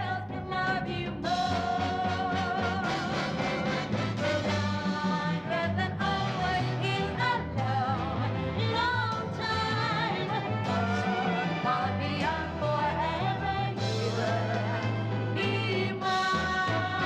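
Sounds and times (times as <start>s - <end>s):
live pop-soul band with singing: 0.0s - 17.0s.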